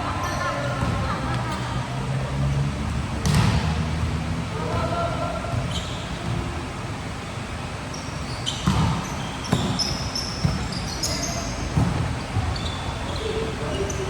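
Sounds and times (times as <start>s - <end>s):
shoes squeaking on court: 5.5s - 6.6s, 7.8s - 14.0s.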